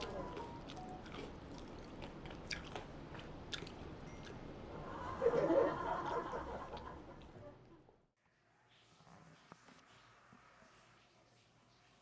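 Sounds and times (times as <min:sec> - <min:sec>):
soft laughter: 0:04.8 - 0:08.0.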